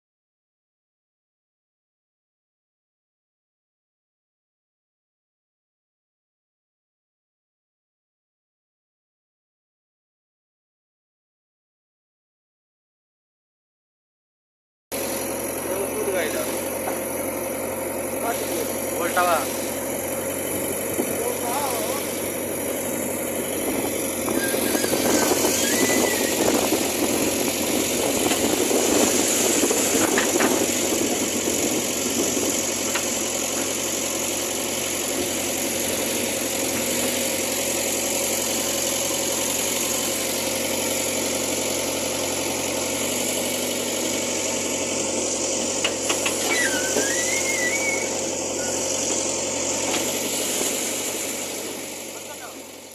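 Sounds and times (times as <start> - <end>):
diesel engine running: 14.9 - 52.9
short whistle-like chirps: 46.5 - 48.8.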